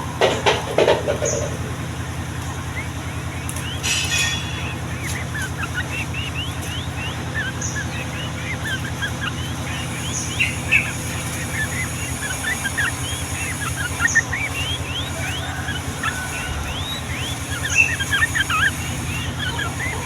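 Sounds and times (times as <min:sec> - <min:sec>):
bird song of quick chirps: 0:00.0 - 0:20.0
low mechanical hum: 0:00.0 - 0:20.0.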